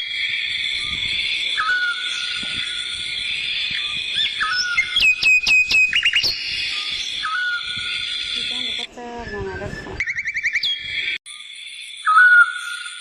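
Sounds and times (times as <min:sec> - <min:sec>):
high-pitched drone: 0:00.0 - 0:10.0
whistled chirps and calls: 0:00.0 - 0:13.0.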